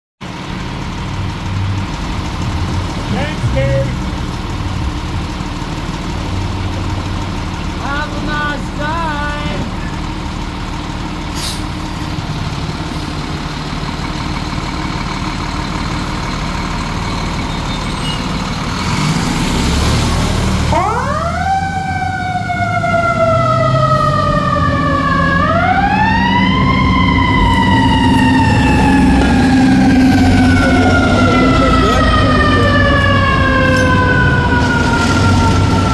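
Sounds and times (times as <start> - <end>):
diesel engine rumbling: 0.2 - 35.9
fire engine siren wailing: 12.1 - 35.9.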